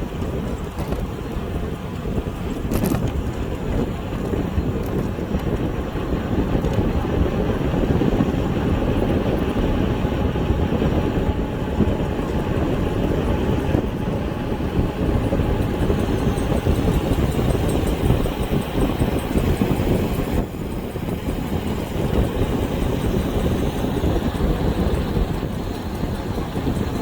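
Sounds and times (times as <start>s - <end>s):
tyre and road noise: 0.0s - 27.0s
wind noise on microphone: 0.0s - 27.0s.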